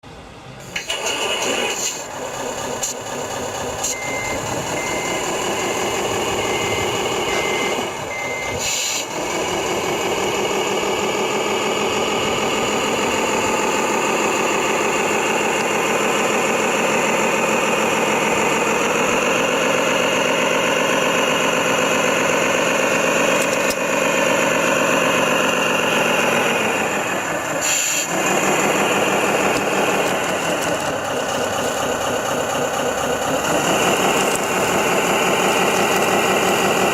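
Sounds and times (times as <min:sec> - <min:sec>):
model truck diesel engine sound: 0:00.0 - 0:36.9
reversing beeper: 0:02.7 - 0:17.1.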